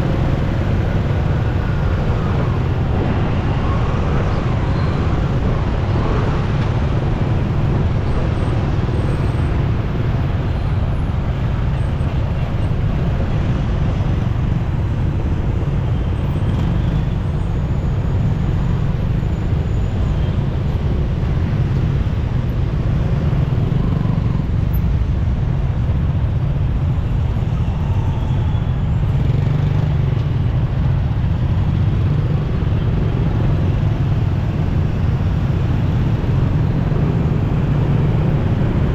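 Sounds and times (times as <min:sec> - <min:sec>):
motorcycle wind and road noise: 0:00.0 - 0:38.9
surrounding vehicles: 0:00.0 - 0:38.9.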